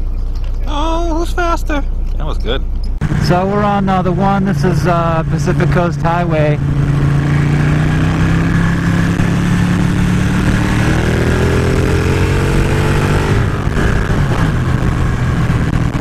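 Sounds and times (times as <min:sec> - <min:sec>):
motorcycle engine cruising: 0:00.0 - 0:16.0
wind rush on microphone: 0:06.6 - 0:16.0.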